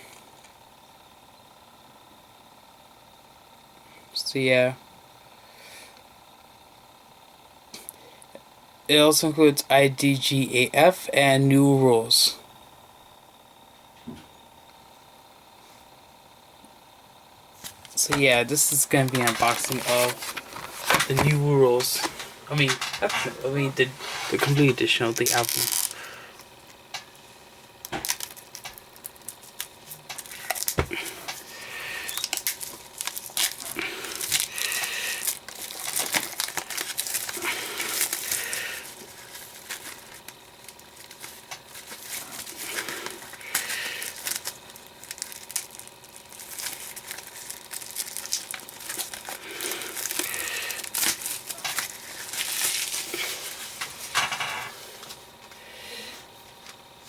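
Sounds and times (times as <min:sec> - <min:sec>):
plastic wrapping crinkling: 0:17.6 - 0:26.8, 0:27.8 - 0:54.3.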